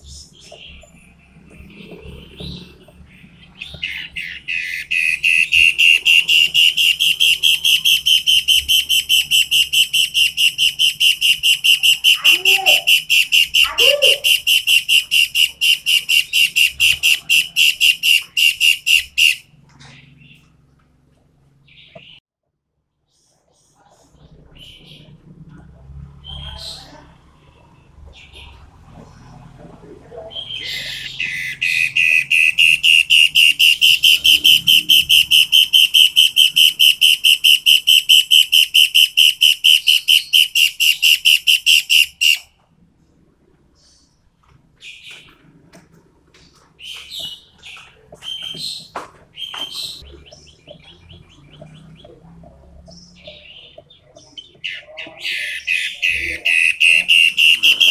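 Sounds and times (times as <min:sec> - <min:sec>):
bird calling sharp high notes: 0:02.5 - 0:20.4, 0:30.4 - 0:42.6, 0:46.8 - 0:57.9.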